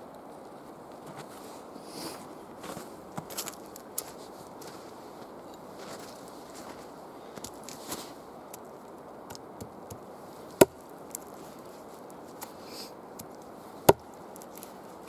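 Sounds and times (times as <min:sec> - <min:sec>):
steady low hiss: 0:00.0 - 0:15.0
chopping strikes on wood: 0:10.6 - 0:10.8, 0:13.9 - 0:14.1.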